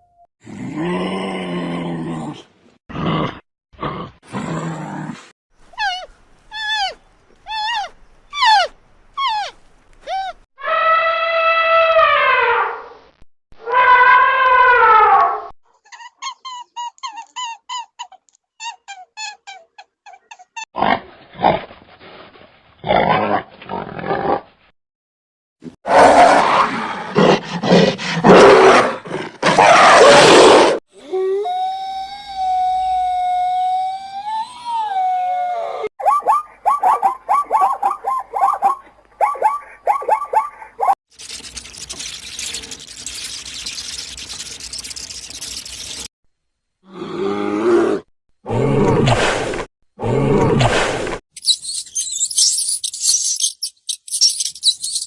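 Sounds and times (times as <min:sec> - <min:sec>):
large animal roaring: 0:00.4 - 0:05.3, 0:25.9 - 0:30.8, 0:46.9 - 0:51.0
high-pitched animal calls: 0:05.8 - 0:12.7, 0:13.6 - 0:20.6, 0:31.1 - 0:46.1, 0:51.4 - 0:55.0.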